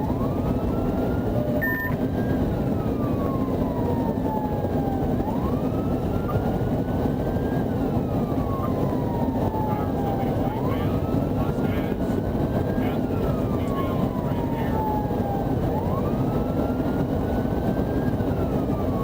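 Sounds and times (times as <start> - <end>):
police siren wailing: 0.0 - 19.0
road and engine noise: 0.0 - 19.0
brief beep: 1.6 - 2.0.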